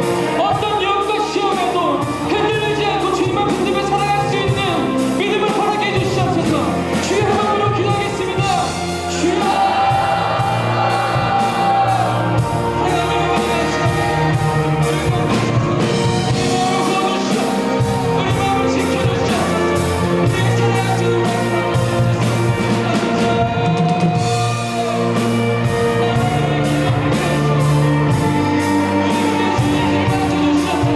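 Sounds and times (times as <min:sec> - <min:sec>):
live band playing: 0:00.0 - 0:30.9
people singing: 0:06.2 - 0:30.9.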